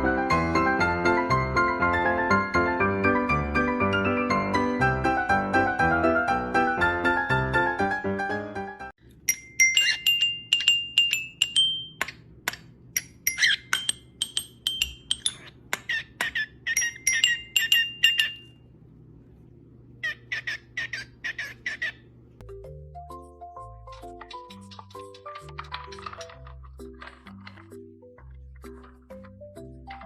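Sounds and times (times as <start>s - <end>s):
parrot chirps and clicks: 9.6s - 18.6s, 23.8s - 29.0s.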